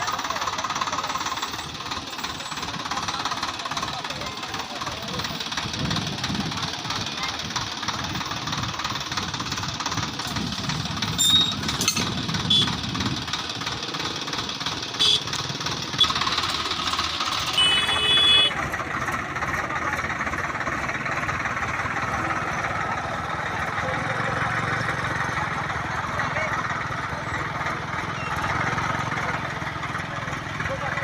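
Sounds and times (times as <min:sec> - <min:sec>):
tractor diesel engine chugging: 0:00.0 - 0:31.0.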